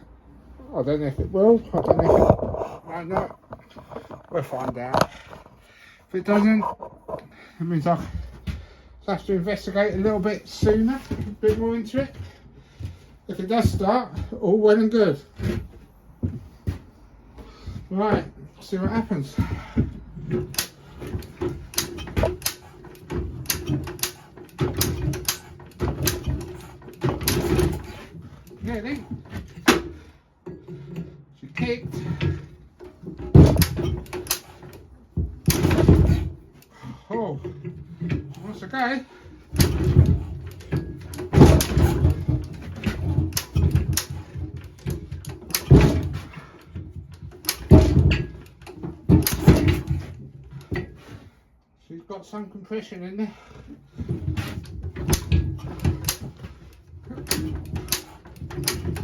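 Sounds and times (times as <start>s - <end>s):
engine turning over clicks and knocks: 17.6s - 31.2s, 31.9s - 51.0s, 54.0s - 59.0s.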